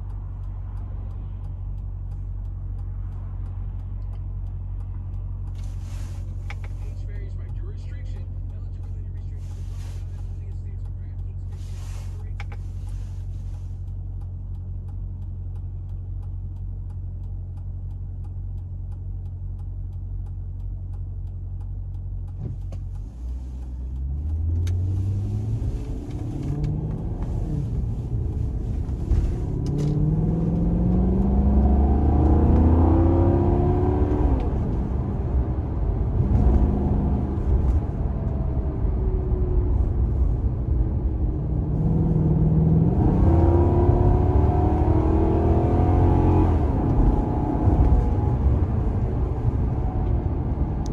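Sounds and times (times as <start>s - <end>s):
car engine idling: 0.0s - 30.6s
car accelerating through gear shifts: 0.0s - 50.9s.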